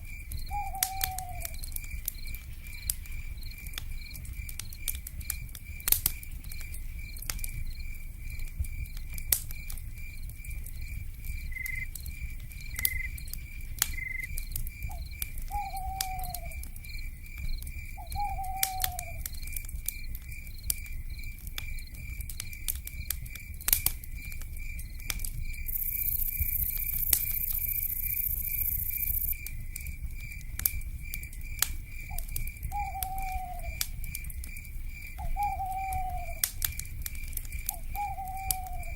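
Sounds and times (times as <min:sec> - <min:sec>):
wood fire crackling: 0:00.0 - 0:38.9
owl hooting: 0:00.5 - 0:01.6, 0:15.5 - 0:16.6, 0:18.0 - 0:19.2, 0:32.7 - 0:33.8, 0:35.2 - 0:36.4, 0:37.7 - 0:38.9
pulsing insect trill: 0:25.7 - 0:29.4.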